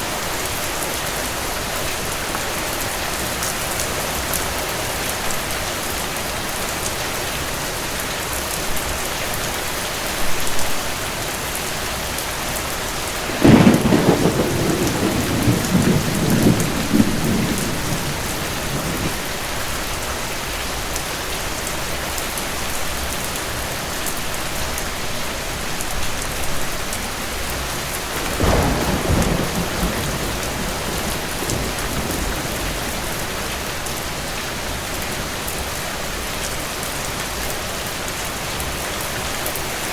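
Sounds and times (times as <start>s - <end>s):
heavy rain: 0.0s - 39.9s
thunder rumbling: 13.2s - 19.6s, 28.0s - 34.8s.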